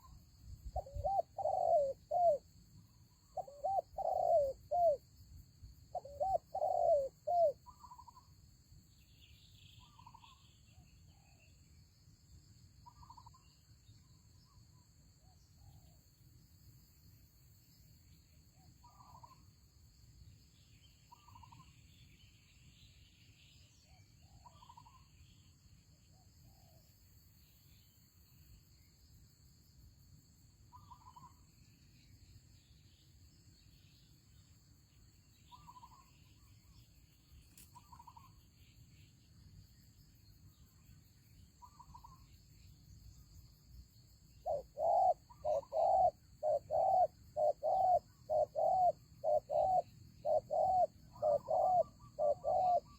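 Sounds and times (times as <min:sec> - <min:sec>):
doves cooing: 0:00.8 - 0:02.4, 0:03.4 - 0:05.0, 0:06.0 - 0:07.6, 0:44.5 - 0:52.9.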